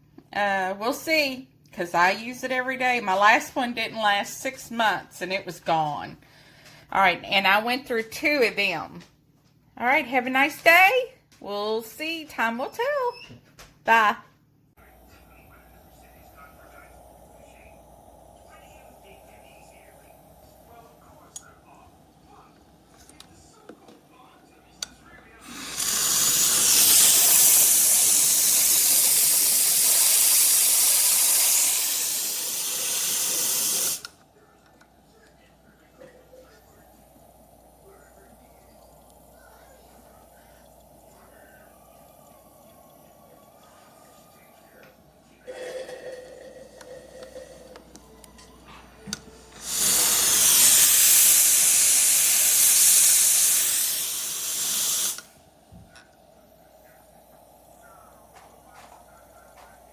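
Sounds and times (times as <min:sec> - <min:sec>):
espresso steam wand hissing: 0:25.4 - 0:34.2, 0:49.5 - 0:55.4.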